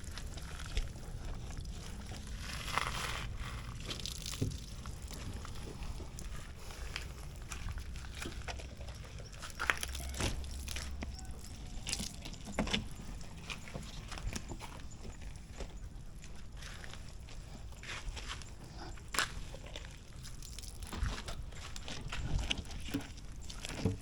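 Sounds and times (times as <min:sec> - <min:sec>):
rustling: 0:00.0 - 0:15.6
low steady hum: 0:00.0 - 0:24.0.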